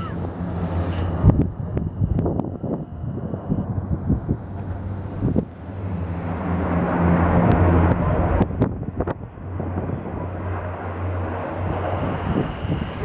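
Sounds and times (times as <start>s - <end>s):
propeller plane engine drone: 0.0s - 13.0s.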